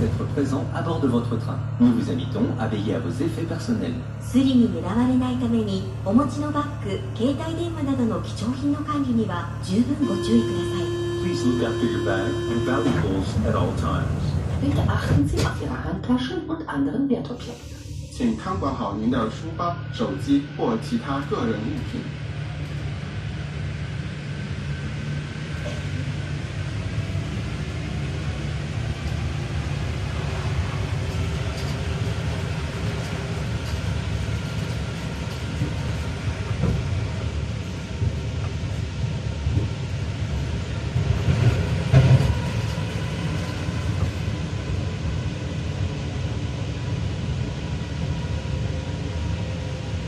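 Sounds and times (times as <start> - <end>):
train running rumble: 0.0 - 50.0
train clatter: 11.3 - 15.9, 28.8 - 44.4.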